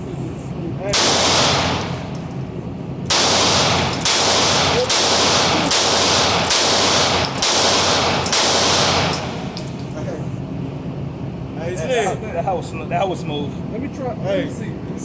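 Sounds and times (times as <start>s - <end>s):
pistol shots with echoing tail: 0.9s - 2.1s, 3.1s - 9.4s.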